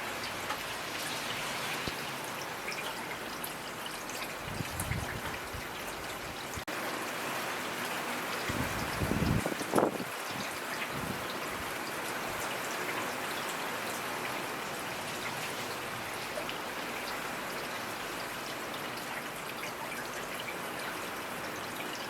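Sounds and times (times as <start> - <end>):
rain hissing: 0.0 - 12.4
raindrops ticking on surfaces: 0.0 - 22.0.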